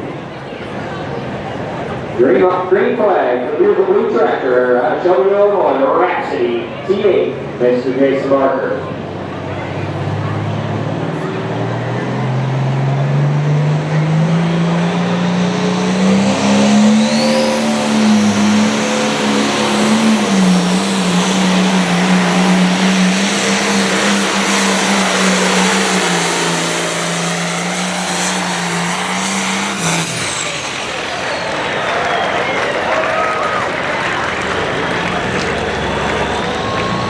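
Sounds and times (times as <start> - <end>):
diesel engine at full throttle: 0.0 - 37.0
high whine: 13.9 - 33.0.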